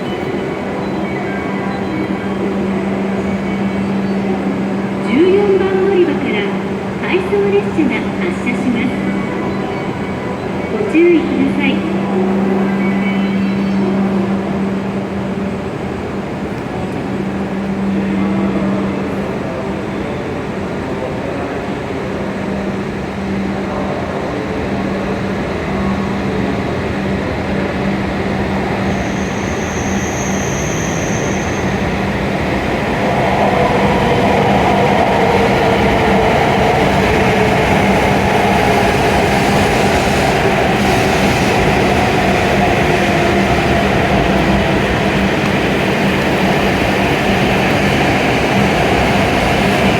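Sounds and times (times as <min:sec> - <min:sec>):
train rumbling: 0:00.0 - 0:49.9.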